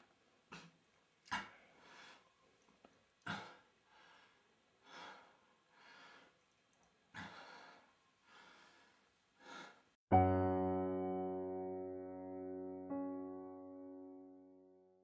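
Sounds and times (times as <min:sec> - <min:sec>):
man breathing heavily: 0:00.5 - 0:02.4, 0:03.2 - 0:06.4, 0:07.1 - 0:10.0
electric piano chord: 0:10.1 - 0:15.0.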